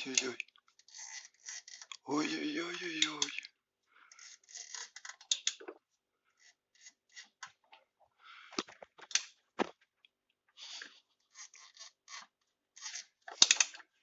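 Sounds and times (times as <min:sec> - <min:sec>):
tools scraping and clicking on metal: 0:00.0 - 0:02.0, 0:04.1 - 0:05.7, 0:11.3 - 0:13.9.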